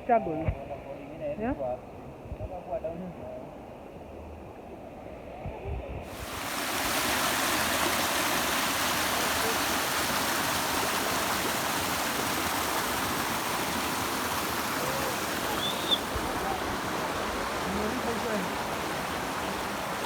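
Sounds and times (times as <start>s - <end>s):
stream water rushing: 6.1s - 20.0s.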